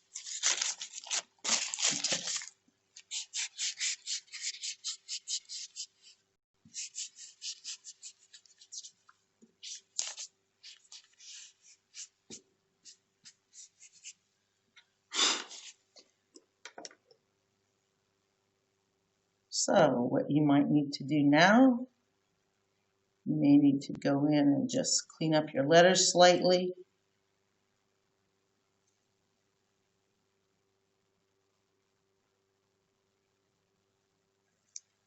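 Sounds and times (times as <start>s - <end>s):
paper rustling: 0.0s - 6.2s, 6.8s - 14.2s, 15.4s - 15.8s
eraser rubbing on paper: 0.0s - 9.0s, 9.6s - 12.2s, 12.8s - 14.2s, 15.4s - 15.8s.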